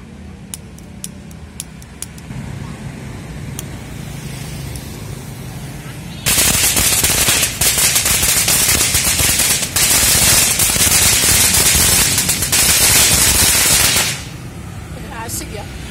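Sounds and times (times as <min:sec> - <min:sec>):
firecrackers crackling: 0:06.2 - 0:14.6.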